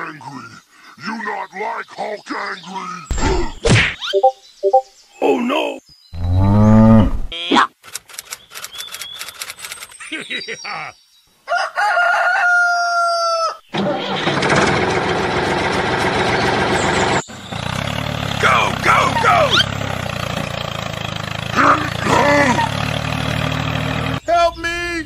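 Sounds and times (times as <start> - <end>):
short clicks and chirps: 7.8 - 10.1
rooster crowing: 11.5 - 13.6
engine running: 13.8 - 24.2.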